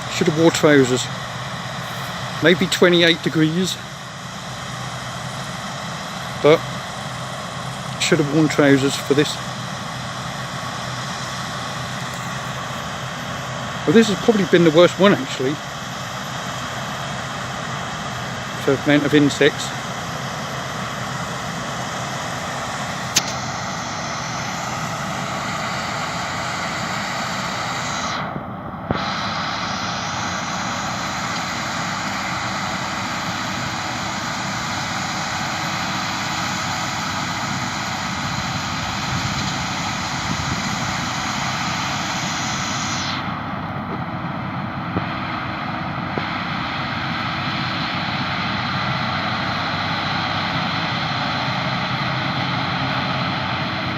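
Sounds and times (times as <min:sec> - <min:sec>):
combine harvester engine drone: 0:00.0 - 0:53.9.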